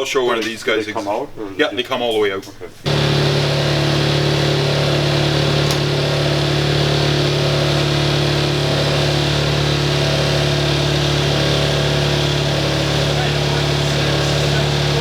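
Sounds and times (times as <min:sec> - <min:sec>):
machine running with low hum: 0:02.9 - 0:15.0.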